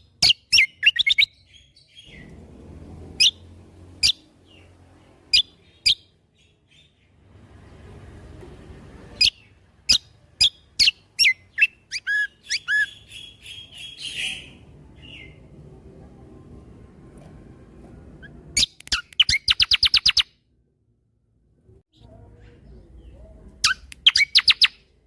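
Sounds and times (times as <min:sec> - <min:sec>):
songbird whistling and trilling: 0:00.2 - 0:02.3, 0:04.0 - 0:04.7, 0:05.3 - 0:07.0, 0:09.2 - 0:15.4, 0:18.2 - 0:20.3, 0:23.6 - 0:24.8.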